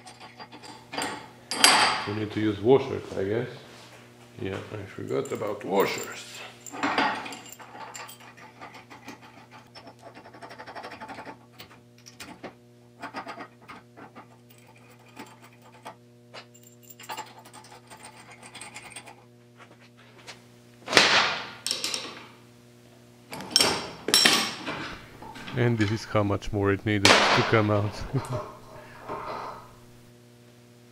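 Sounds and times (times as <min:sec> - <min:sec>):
metal parts clinking and scraping: 0:00.0 - 0:02.1, 0:05.1 - 0:19.2, 0:21.6 - 0:22.2.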